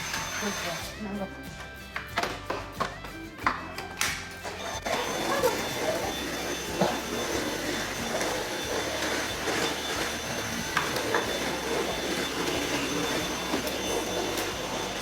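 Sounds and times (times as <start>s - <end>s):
vacuum cleaner whining: 0.0s - 1.0s, 4.4s - 15.0s.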